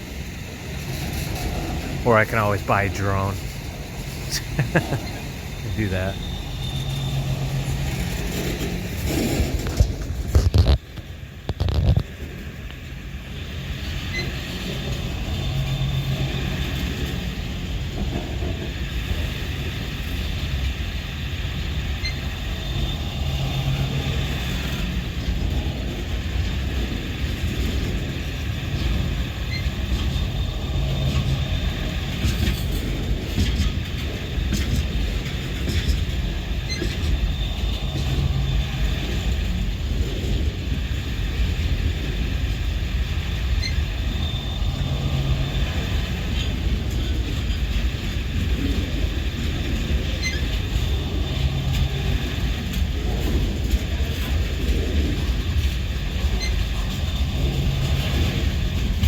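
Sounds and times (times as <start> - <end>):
freight train wheels rumbling: 12.1 - 59.0.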